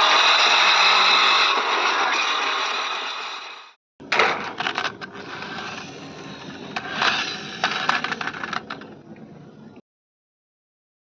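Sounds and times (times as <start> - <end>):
mechanical whir: 0.0 - 9.8
plastic toy parts clattering: 4.1 - 9.0.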